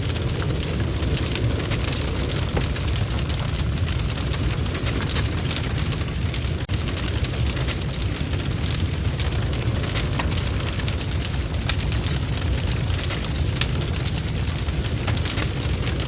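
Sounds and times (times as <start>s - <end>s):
bonfire popping and snapping: 0.0s - 16.0s
low rumble of burning: 0.0s - 16.0s.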